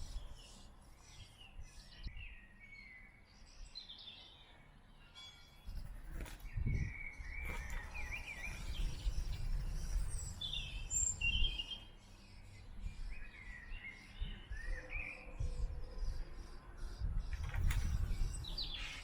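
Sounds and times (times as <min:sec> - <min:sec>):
small birds chirping: 0:00.0 - 0:05.1, 0:05.7 - 0:19.0.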